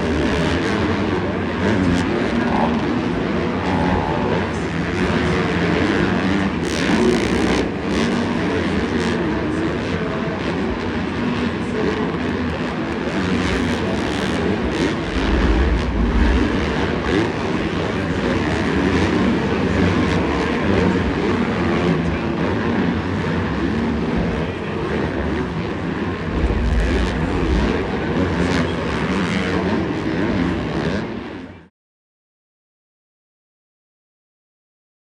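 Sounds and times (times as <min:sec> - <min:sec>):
dirt bike engines revving: 0:00.0 - 0:09.1, 0:13.2 - 0:21.4, 0:25.0 - 0:31.4.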